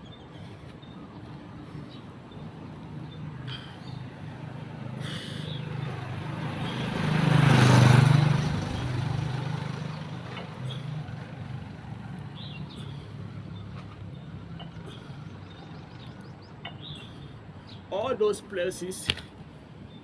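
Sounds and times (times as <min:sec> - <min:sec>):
low engine hum: 0:00.0 - 0:17.9
vehicle passing by: 0:01.1 - 0:17.3
bird chirping: 0:08.7 - 0:18.0.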